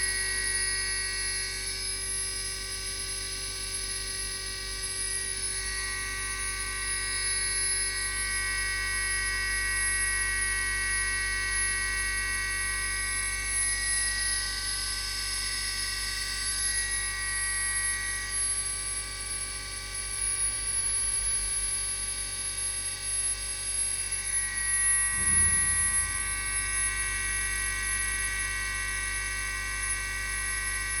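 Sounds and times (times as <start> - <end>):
low thump: 25.1 - 26.6.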